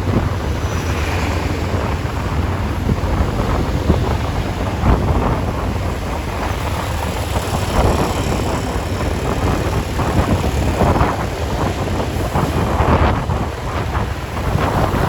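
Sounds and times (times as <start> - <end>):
traffic rumble: 0.0 - 15.0
wind buffeting microphone: 0.0 - 15.0.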